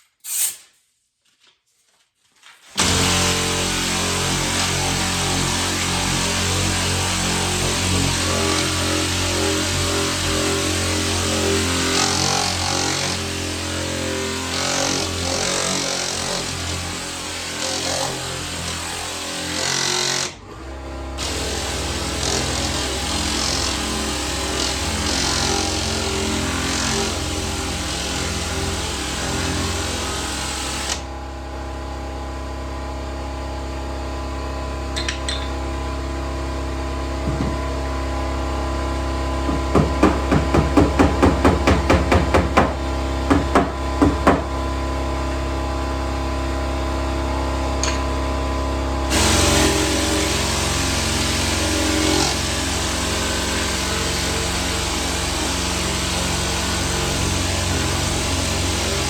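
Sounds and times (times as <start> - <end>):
hammer tapping sheet metal: 39.5 - 44.5
hiss: 49.1 - 52.9.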